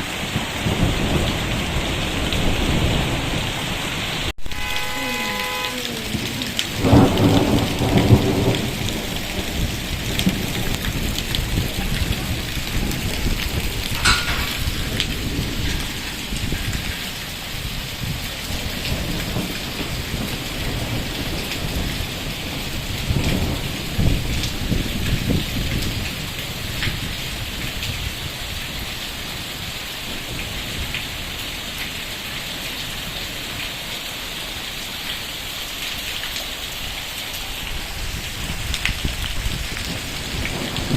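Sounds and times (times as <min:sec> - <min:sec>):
heavy rain falling: 0:00.0 - 0:40.9
rainwater streaming down road: 0:00.0 - 0:40.9
low rumbles: 0:06.0 - 0:18.2.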